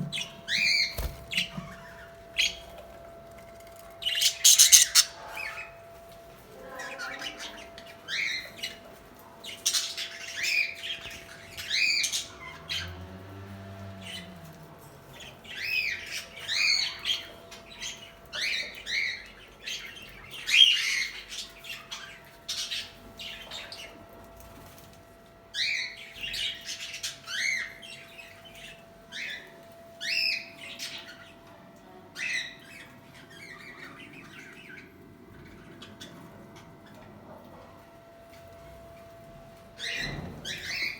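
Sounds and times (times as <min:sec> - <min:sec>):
budgerigars squawking: 0:04.1 - 0:05.6.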